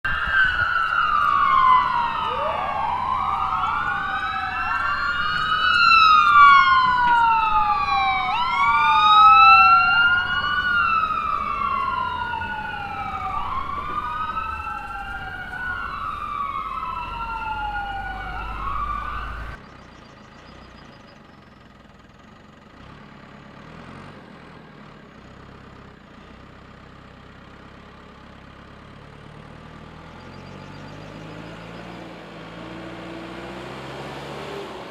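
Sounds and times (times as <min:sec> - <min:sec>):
wailing sirens: 0:00.0 - 0:19.6, 0:29.5 - 0:34.9.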